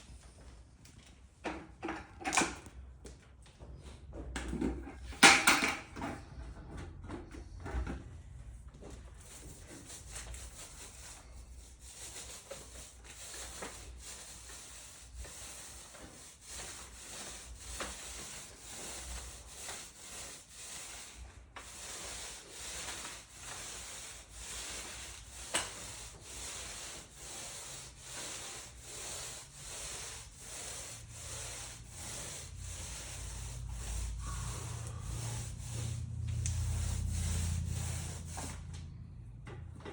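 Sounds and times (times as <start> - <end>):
hand tool rubbing concrete: 9.2 - 38.7.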